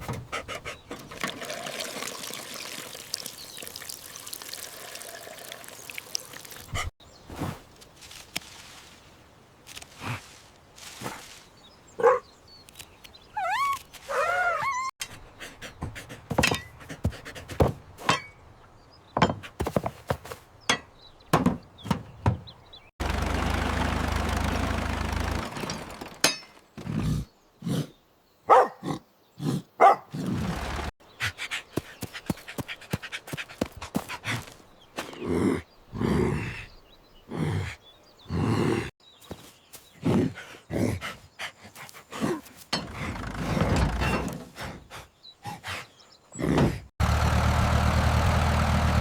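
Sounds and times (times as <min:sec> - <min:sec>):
cartoon thuds and knocks: 0:21.3 - 0:22.5.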